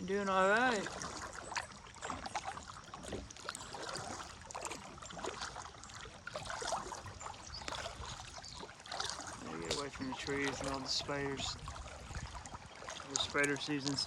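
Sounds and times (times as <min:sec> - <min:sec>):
paddle splashing in water: 0:00.0 - 0:14.0.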